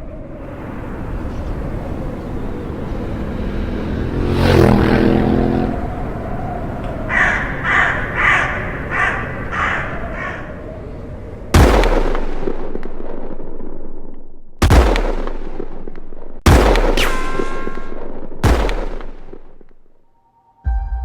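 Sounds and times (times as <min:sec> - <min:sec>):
loud gunshot-like bangs: 0:11.5 - 0:13.3, 0:14.6 - 0:19.6
ricochet whine falling in pitch: 0:16.5 - 0:19.4.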